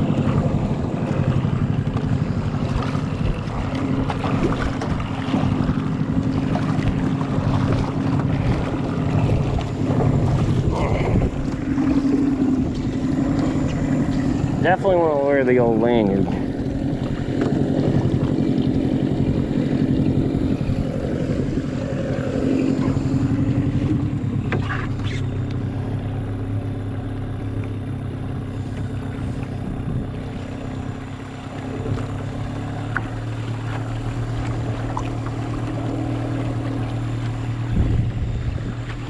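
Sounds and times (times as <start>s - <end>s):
wind on microphone: 0.0s - 25.3s, 28.5s - 31.0s, 37.5s - 39.0s
outboard motor running: 0.0s - 39.0s.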